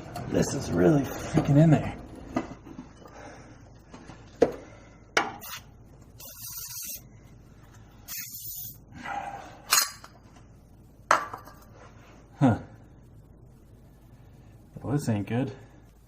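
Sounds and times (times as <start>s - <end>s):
short hissing bursts: 6.2s - 7.1s, 8.0s - 8.8s.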